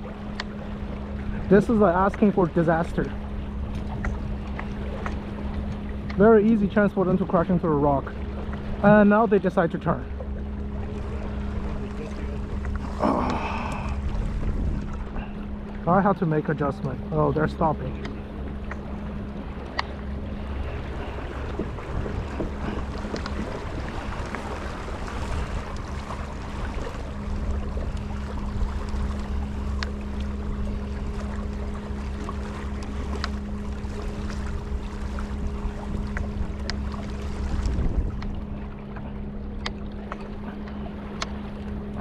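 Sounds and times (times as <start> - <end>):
steady low hum: 0.0 - 42.0
water around a kayak: 0.0 - 42.0
wind rumbling on microphone: 10.4 - 42.0.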